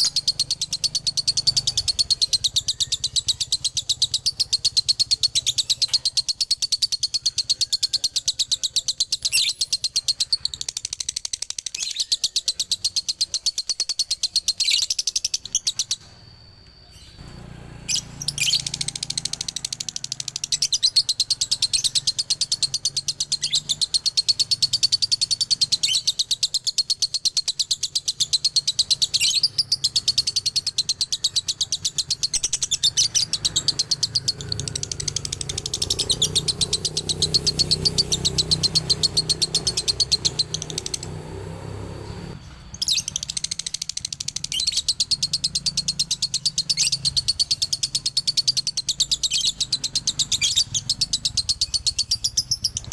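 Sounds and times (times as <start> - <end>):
lovebird chattering trill: 0.0 - 17.2, 17.9 - 52.9.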